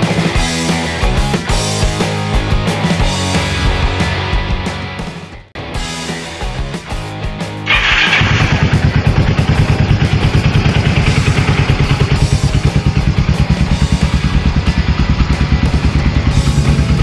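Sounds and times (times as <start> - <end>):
motorcycle engine starting and idling: 7.6 - 17.0.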